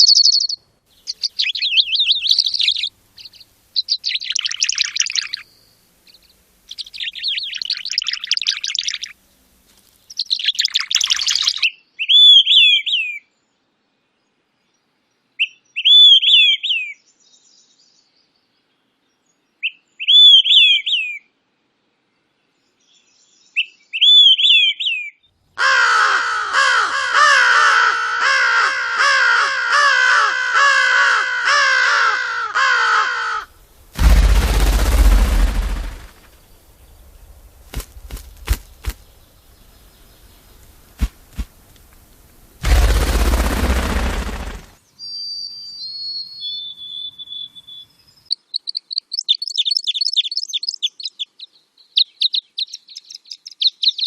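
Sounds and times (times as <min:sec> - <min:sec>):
fast repeated bird calls: 0:00.0 - 0:05.4, 0:10.1 - 0:11.7, 0:25.6 - 0:44.8
bird whistled phrases: 0:01.3 - 0:02.9, 0:10.2 - 0:13.2, 0:19.6 - 0:21.2, 0:23.6 - 0:25.1, 0:45.0 - 0:48.0
rushing noise bursts: 0:33.6 - 0:39.8, 0:40.6 - 0:44.8
sharp clicks: 0:34.0 - 0:36.3.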